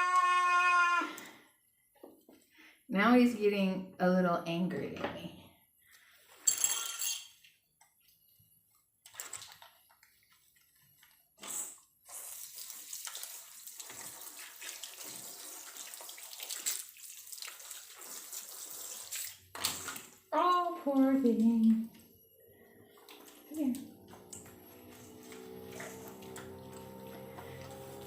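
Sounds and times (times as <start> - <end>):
water running into a tub: 11.4 - 22.0, 22.7 - 28.0.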